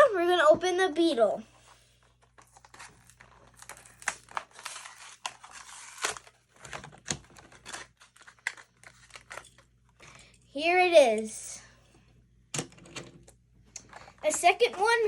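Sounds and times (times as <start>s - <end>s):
plastic crinkling: 2.0s - 10.0s
cardboard tearing: 2.6s - 9.3s.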